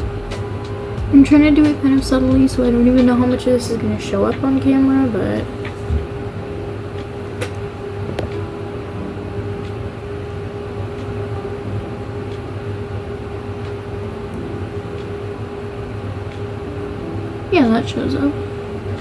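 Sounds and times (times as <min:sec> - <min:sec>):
air conditioner humming: 0:00.0 - 0:19.0.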